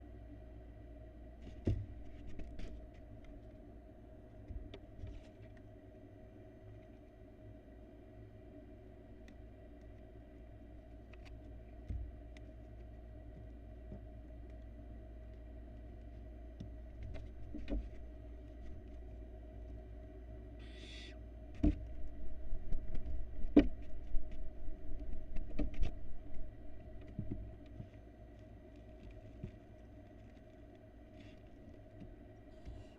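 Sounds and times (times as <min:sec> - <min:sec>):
low hum: 0:00.0 - 0:32.9
owlet hissing call: 0:20.6 - 0:21.2.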